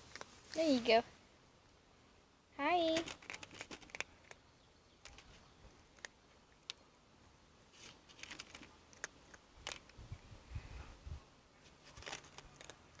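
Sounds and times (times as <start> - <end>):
cat crunching dry kibble: 0.0 - 0.6, 3.0 - 4.4, 5.9 - 6.8, 7.7 - 10.2, 11.6 - 13.0.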